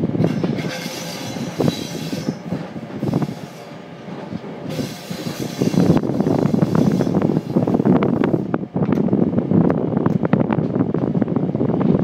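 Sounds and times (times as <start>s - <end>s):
train wheels rumbling on rails: 0.0s - 12.0s
high wheel squeal: 0.2s - 3.8s, 4.7s - 7.6s.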